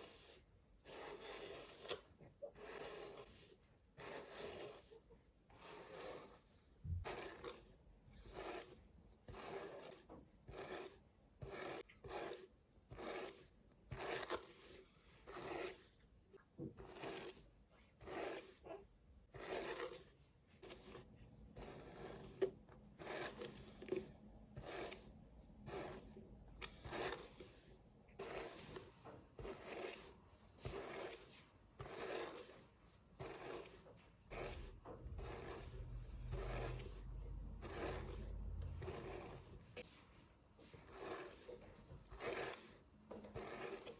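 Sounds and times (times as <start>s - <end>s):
hairbrush swishing through hair: 0.0s - 16.0s, 19.4s - 43.9s.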